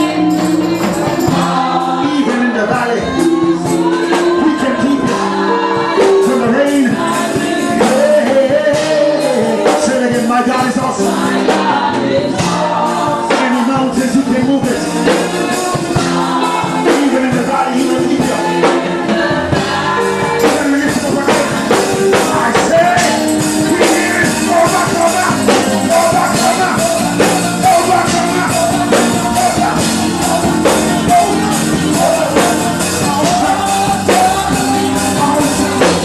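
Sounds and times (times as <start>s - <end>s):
gospel singers with band: 0.0s - 36.0s.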